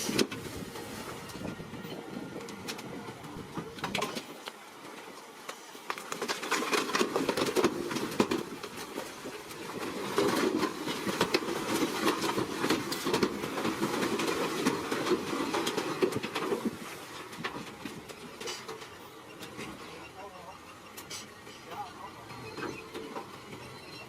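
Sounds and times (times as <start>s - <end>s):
bulldozer engine running: 0.0s - 24.0s
steel tracks clattering: 10.2s - 24.0s.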